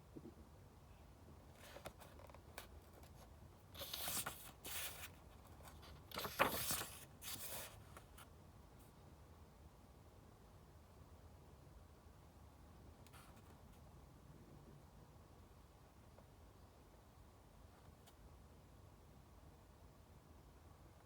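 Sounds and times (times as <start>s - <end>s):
paper rustling: 1.6s - 8.2s.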